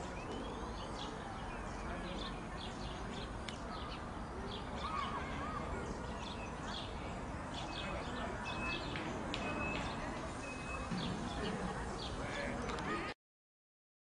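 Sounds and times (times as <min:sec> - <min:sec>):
small birds chirping: 0:00.0 - 0:13.1.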